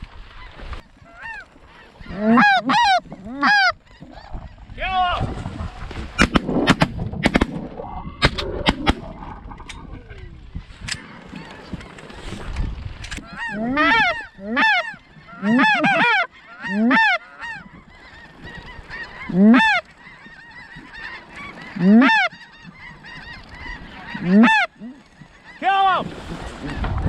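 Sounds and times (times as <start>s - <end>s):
goose honking: 1.0s - 4.3s, 13.2s - 26.0s.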